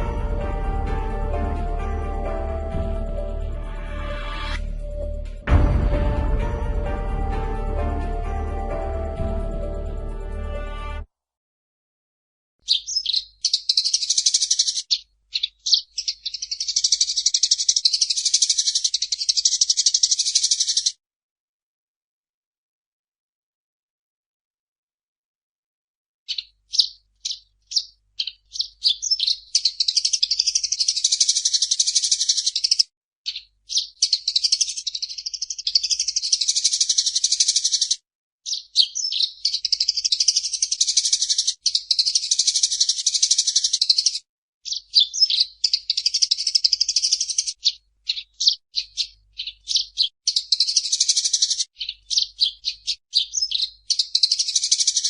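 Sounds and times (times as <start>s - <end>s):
sparrow chirping: 12.6s - 21.0s, 26.3s - 55.0s.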